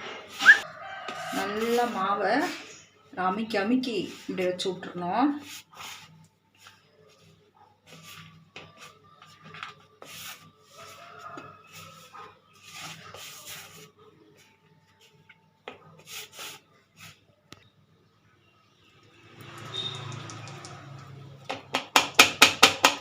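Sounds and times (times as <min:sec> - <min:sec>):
hands rustling in flour: 0:05.4 - 0:15.2.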